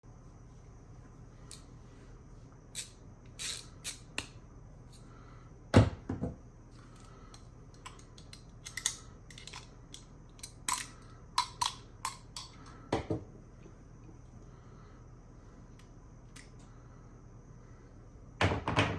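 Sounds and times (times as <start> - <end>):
clicks and taps of parts: 7.0 - 13.1.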